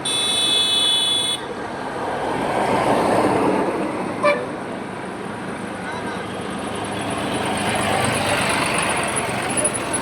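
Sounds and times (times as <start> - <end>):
highway traffic: 0.0 - 10.0
vehicle passing: 6.3 - 10.0.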